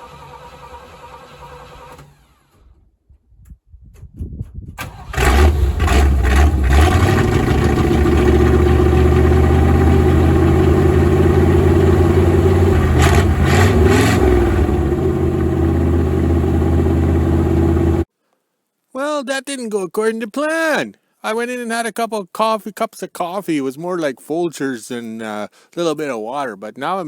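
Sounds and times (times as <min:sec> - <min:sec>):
clattering engine surges: 0:04.9 - 0:18.1
engine running: 0:04.9 - 0:18.1.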